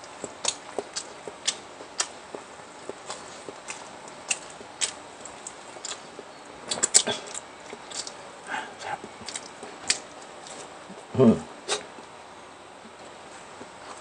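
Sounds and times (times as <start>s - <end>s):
chewing and mouth smacking: 0.0s - 11.1s.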